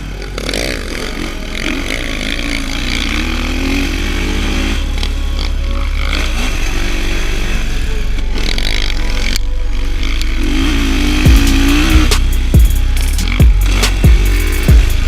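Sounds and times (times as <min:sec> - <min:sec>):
dirt bike engine revving: 0:00.0 - 0:15.0
thumping music beat: 0:11.0 - 0:15.0.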